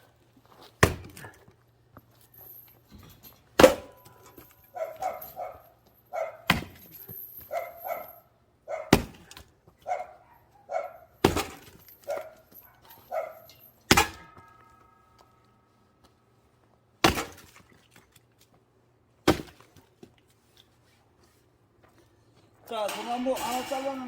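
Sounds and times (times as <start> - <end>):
axe chopping wood: 0.7 - 1.3, 3.6 - 4.0, 6.5 - 6.9, 8.9 - 9.5, 11.2 - 11.8, 13.9 - 14.3, 17.0 - 17.6, 19.2 - 19.8
dog barking: 3.9 - 6.6, 7.5 - 11.2, 12.0 - 13.6
short metallic ringing: 22.7 - 24.0.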